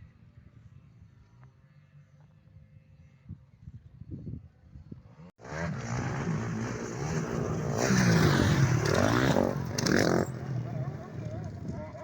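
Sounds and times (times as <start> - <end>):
motorcycle engine revving: 5.1 - 12.0.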